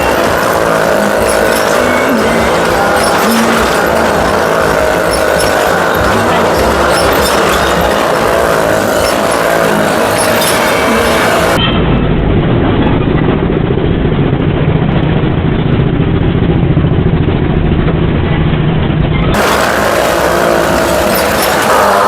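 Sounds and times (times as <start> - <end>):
engines at high revs: 0.0 - 11.6, 19.3 - 22.0
music playing: 0.0 - 11.6, 19.4 - 22.0.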